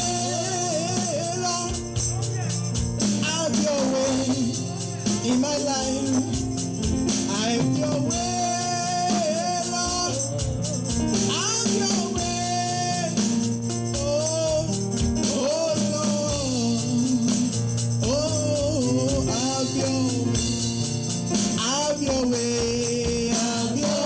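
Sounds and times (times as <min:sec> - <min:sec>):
band playing chords: 0:00.0 - 0:24.0
drum and tambourine beat: 0:00.0 - 0:24.0.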